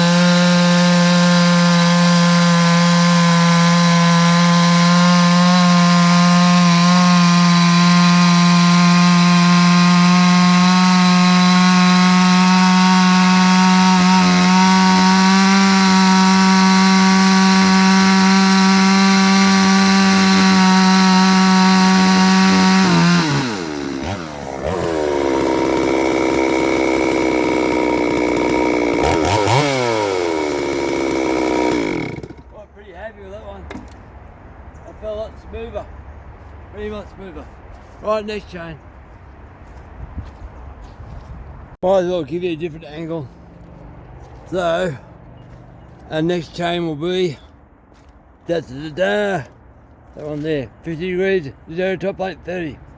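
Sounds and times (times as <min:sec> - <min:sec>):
chainsaw cutting wood: 0:00.0 - 0:32.6.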